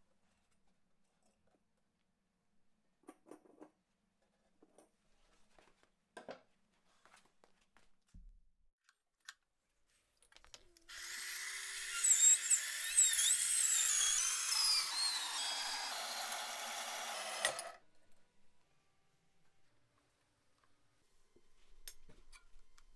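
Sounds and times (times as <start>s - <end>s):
power tool with high squeal: 10.9s - 17.8s.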